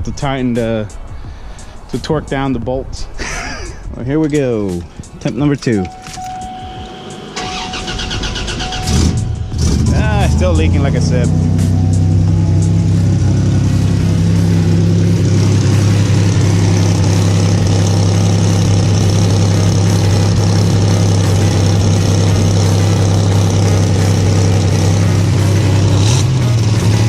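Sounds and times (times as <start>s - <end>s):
car engine idling: 5.7s - 27.0s.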